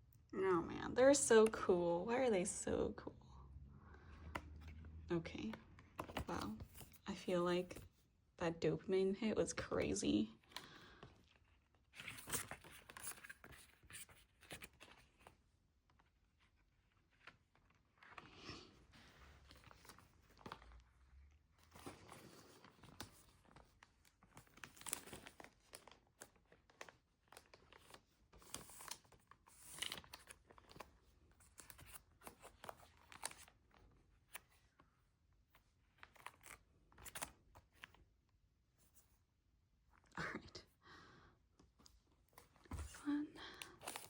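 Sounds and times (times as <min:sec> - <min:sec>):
packaging rustling and crinkling: 0:18.9 - 0:33.6, 0:43.6 - 0:44.0.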